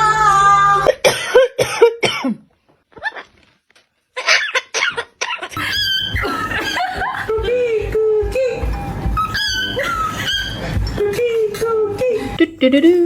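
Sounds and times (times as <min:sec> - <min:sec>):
person coughing: 0:00.9 - 0:02.5.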